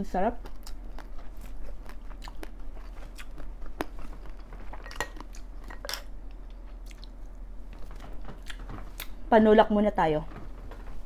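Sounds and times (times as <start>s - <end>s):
wet mouth chewing clicks: 0.4s - 5.5s.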